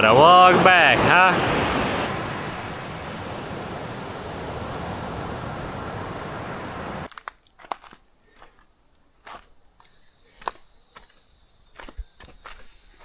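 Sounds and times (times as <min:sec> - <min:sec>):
ocean surf washing onto beach: 0:00.0 - 0:07.1.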